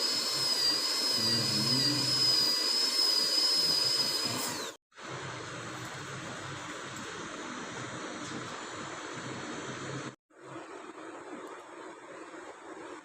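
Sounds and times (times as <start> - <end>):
dental drill whining: 0.0 - 4.8.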